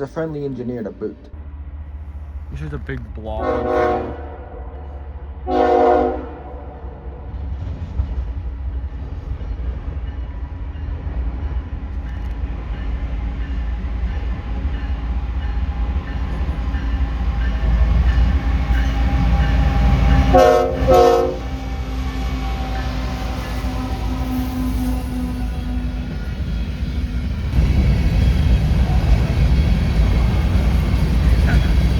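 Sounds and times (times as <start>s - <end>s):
train rumbling: 0.0s - 31.9s
locomotive air horn: 3.4s - 4.8s, 5.4s - 6.8s, 19.8s - 26.0s.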